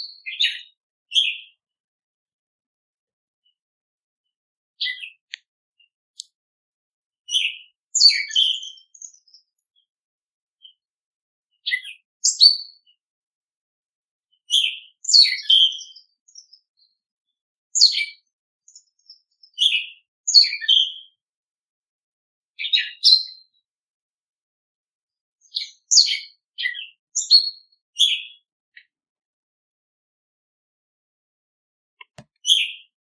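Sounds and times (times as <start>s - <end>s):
small songbirds chirping: 0.0s - 1.7s, 4.8s - 6.4s, 7.3s - 9.9s, 11.5s - 13.0s, 14.3s - 17.0s, 17.7s - 21.2s, 22.6s - 23.6s, 25.4s - 28.9s, 32.0s - 33.0s.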